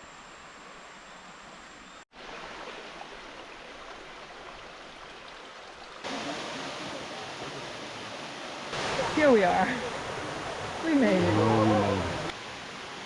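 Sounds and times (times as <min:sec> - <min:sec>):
stream water rushing: 0:02.1 - 0:13.0.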